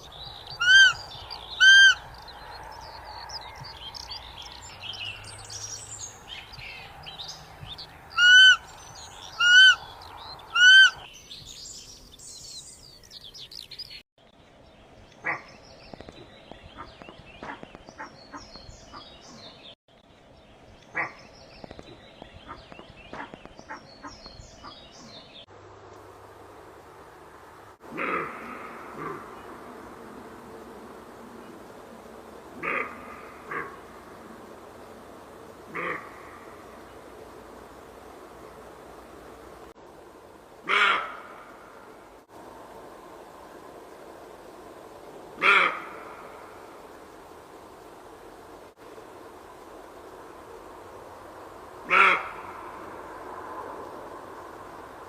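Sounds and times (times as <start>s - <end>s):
birdsong: 0.0s - 26.1s, 27.8s - 39.8s
roe deer calls: 0.6s - 2.1s, 8.2s - 8.6s, 9.4s - 9.8s, 10.5s - 11.1s, 27.9s - 29.4s, 40.7s - 41.4s, 45.4s - 46.3s, 51.9s - 52.6s.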